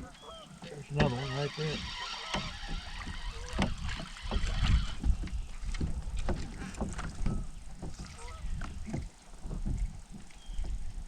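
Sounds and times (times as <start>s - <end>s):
knocks and bumps inside boat: 0.0s - 11.0s.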